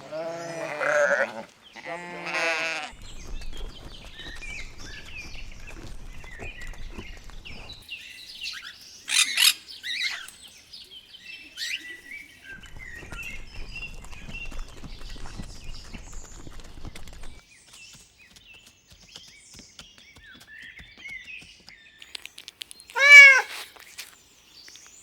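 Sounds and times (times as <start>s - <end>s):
small birds chirping: 0.0s - 25.0s
loud sharp bird call: 22.9s - 23.7s.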